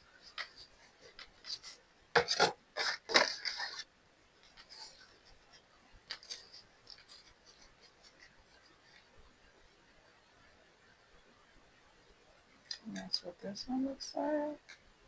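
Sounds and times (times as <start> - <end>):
scraping and rubbing strokes: 0.0 - 9.2.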